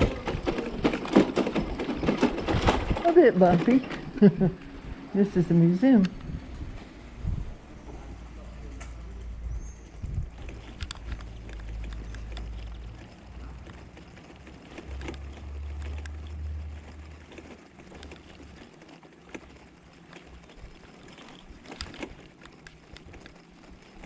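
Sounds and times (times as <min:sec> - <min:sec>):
wind rumble on microphone: 0:00.0 - 0:08.3, 0:09.3 - 0:12.7
bicycle rattling over bumpy street: 0:00.0 - 0:24.0.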